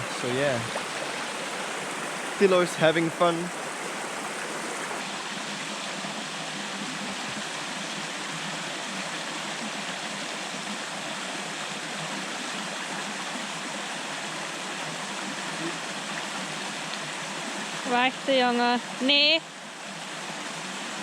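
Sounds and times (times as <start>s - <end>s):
water rushing over small waterfalls: 0.0s - 21.0s.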